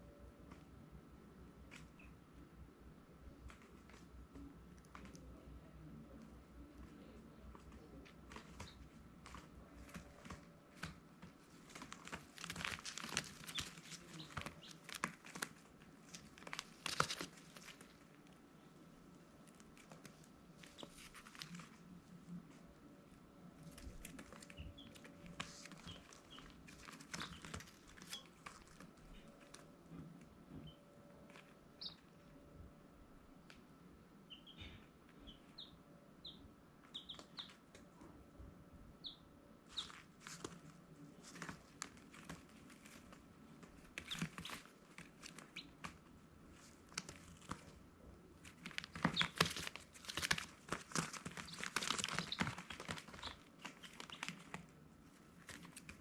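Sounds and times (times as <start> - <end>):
baby chicks peeping: 0.0 - 18.4, 19.2 - 32.7, 33.5 - 56.0
crackling rustling scratches: 6.2 - 32.3, 39.6 - 56.0.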